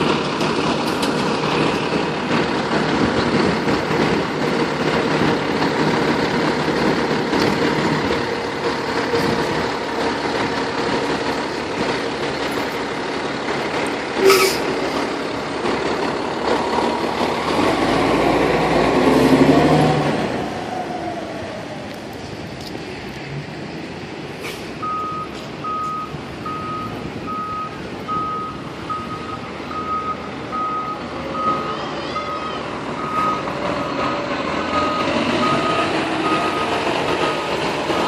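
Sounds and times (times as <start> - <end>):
diesel engine running: 0.0 - 38.0
air brake hiss: 14.2 - 14.7, 24.4 - 24.8.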